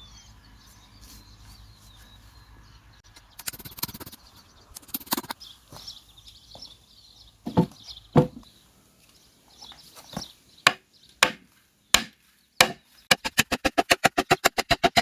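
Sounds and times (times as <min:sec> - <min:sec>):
birds chirping faintly: 0:00.0 - 0:13.4
fast run of knocks: 0:07.5 - 0:08.4
sharp knocks on wood: 0:07.5 - 0:08.5, 0:10.2 - 0:11.4, 0:12.0 - 0:13.2.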